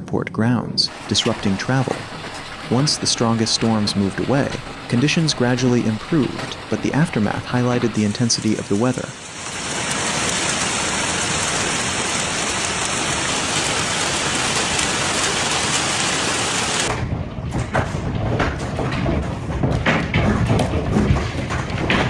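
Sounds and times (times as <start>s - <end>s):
raindrops ticking: 0.9s - 8.1s
heavy rain: 0.9s - 8.2s, 9.2s - 16.9s.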